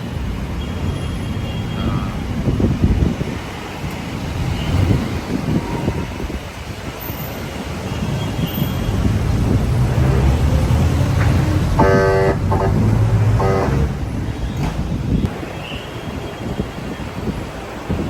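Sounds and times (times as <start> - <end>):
road and engine rumble: 0.0 - 18.0
wind on microphone: 0.0 - 18.0
vehicle horn honking: 11.8 - 14.2.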